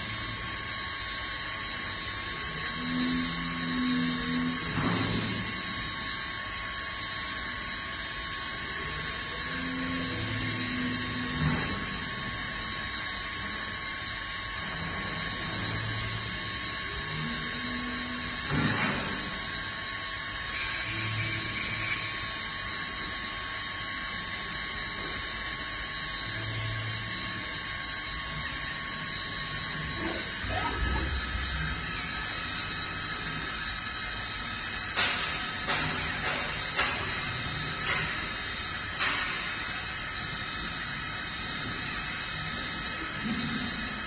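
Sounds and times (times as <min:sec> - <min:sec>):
lathe running: 0:20.5 - 0:44.0.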